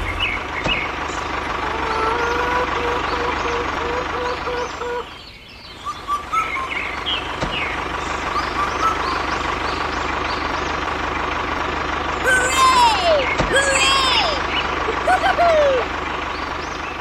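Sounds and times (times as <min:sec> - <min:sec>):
birds chirping: 0:00.0 - 0:17.0
vehicle noise: 0:00.0 - 0:17.0
reversing beeper: 0:05.8 - 0:09.9.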